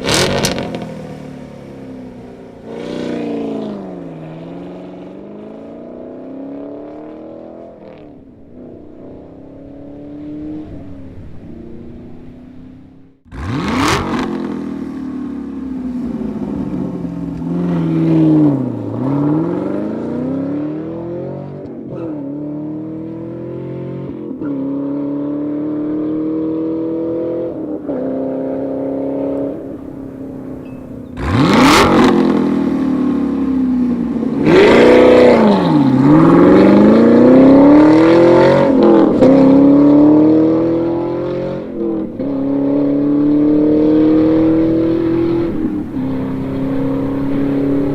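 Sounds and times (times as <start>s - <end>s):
car engine accelerating: 0.0s - 47.9s.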